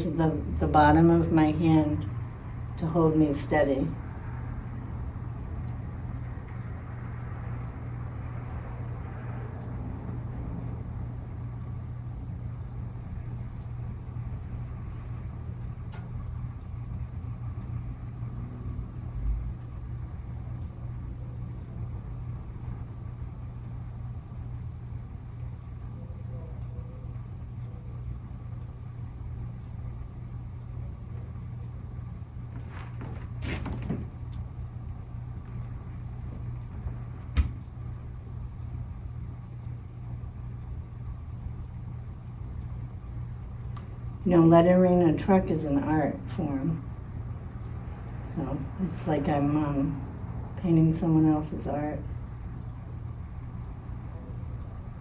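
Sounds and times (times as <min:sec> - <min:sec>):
steady low hum: 0:00.0 - 0:55.0
dull thump: 0:32.6 - 0:34.3, 0:36.3 - 0:37.7
rustling knocks: 0:32.6 - 0:34.4, 0:36.2 - 0:37.6.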